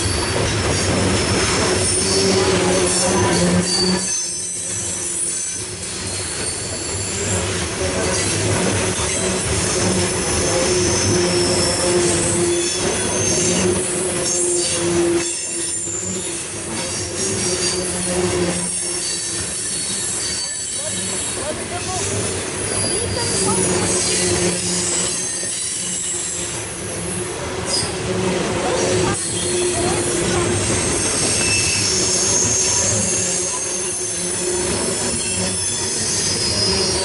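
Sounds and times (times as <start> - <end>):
high-pitched wheel squeal: 0.0 - 37.0
train cars rumbling and clattering: 0.0 - 37.0.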